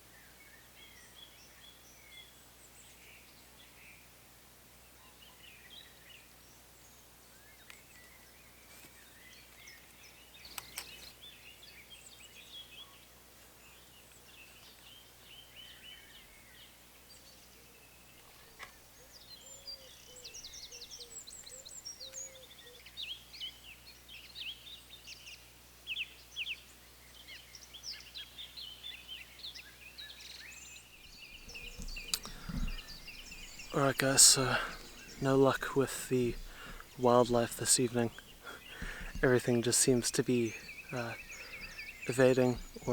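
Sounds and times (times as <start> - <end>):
woodland birds singing: 0.0 - 4.1, 4.8 - 42.9
sharp clicks: 31.5 - 35.2.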